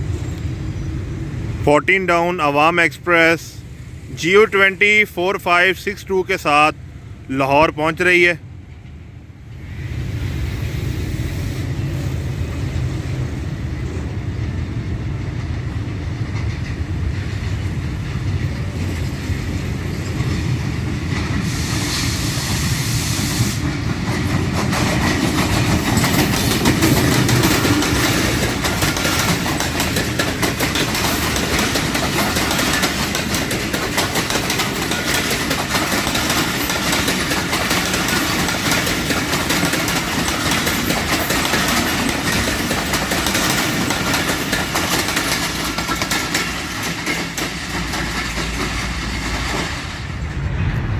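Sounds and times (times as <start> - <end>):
diesel locomotive running: 0.0 - 50.9
train wheels clattering over rail joints: 13.8 - 50.6
brief hiss: 21.5 - 23.6.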